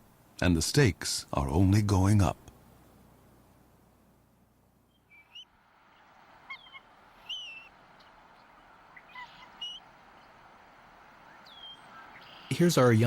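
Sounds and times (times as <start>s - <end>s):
faint steady hiss: 0.0s - 13.0s
eagle whistled calls: 4.9s - 12.9s.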